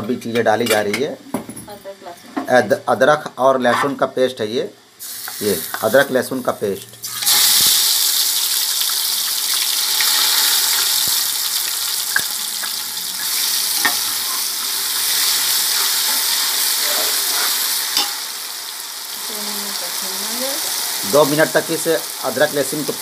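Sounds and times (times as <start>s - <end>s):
paste sizzling in hot oil: 5.0s - 23.0s.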